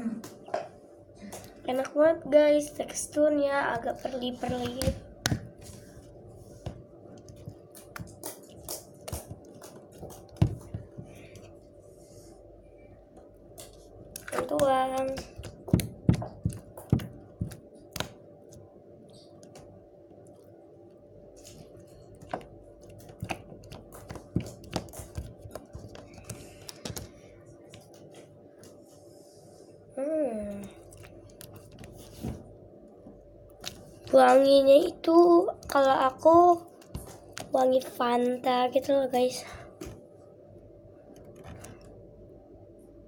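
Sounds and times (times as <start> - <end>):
slime squished by hand: 21.5 - 27.9.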